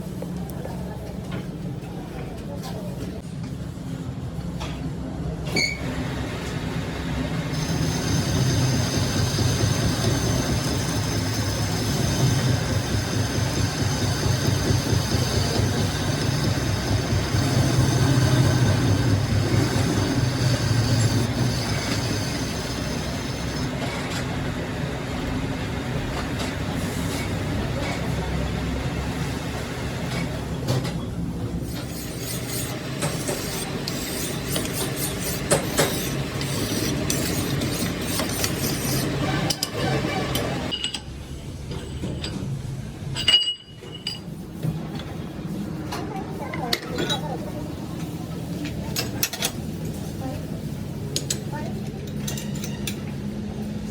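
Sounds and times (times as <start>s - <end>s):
machine running with low rumble: 6.0s - 29.7s.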